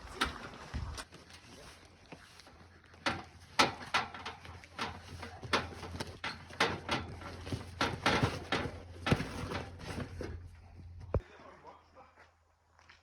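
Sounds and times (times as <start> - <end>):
sharp knocks and clatters: 3.0 - 10.4.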